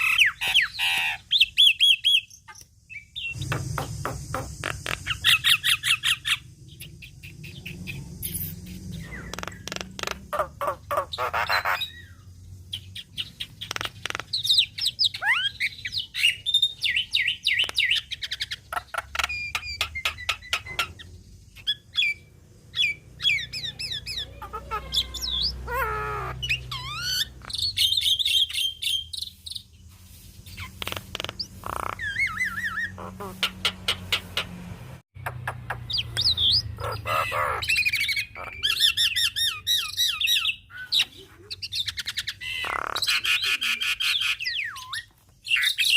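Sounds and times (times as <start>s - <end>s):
bird singing varied calls: 0.0s - 29.7s, 35.2s - 45.9s.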